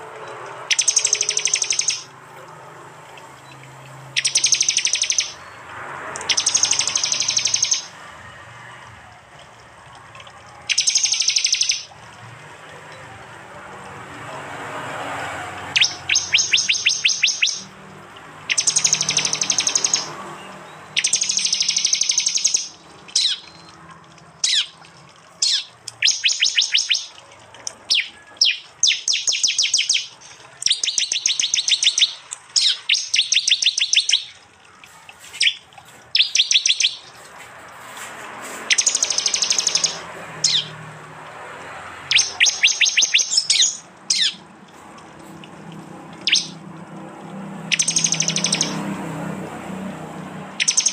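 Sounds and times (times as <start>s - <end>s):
bird trilling song: 0.6s - 2.1s, 3.4s - 5.6s, 6.2s - 7.9s, 10.7s - 11.9s, 15.7s - 17.7s, 18.5s - 34.4s, 35.4s - 37.2s, 38.7s - 40.8s, 42.1s - 44.5s, 46.2s - 46.6s, 47.7s - 48.8s, 50.6s - 50.9s
sharp bird chirps: 0.7s - 2.1s, 3.3s - 5.6s, 6.2s - 7.9s, 10.7s - 11.9s, 15.7s - 17.7s, 18.5s - 23.8s, 24.4s - 27.2s, 27.9s - 34.5s, 35.4s - 37.2s, 38.6s - 40.8s, 42.0s - 44.5s, 46.2s - 46.6s, 47.7s - 48.8s, 50.6s - 50.9s.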